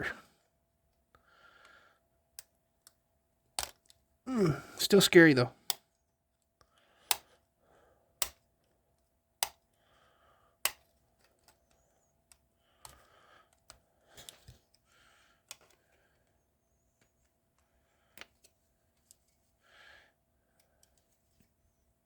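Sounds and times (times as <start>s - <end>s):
plastic parts snapping: 3.6s - 4.0s, 10.6s - 11.7s.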